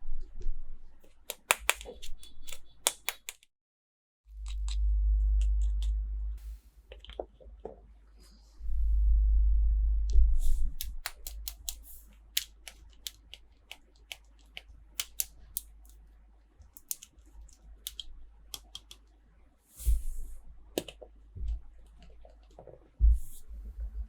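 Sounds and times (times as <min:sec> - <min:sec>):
sharp plastic clicks and snips: 0:01.0 - 0:03.5, 0:10.8 - 0:16.0, 0:16.7 - 0:19.1.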